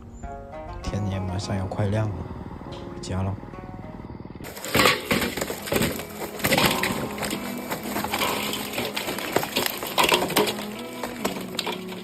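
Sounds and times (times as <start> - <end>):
hard objects clattering: 4.4 - 12.0.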